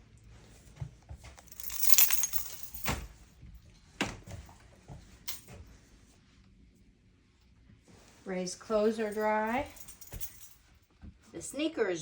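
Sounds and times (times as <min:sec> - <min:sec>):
small objects clinking: 0:01.4 - 0:03.0.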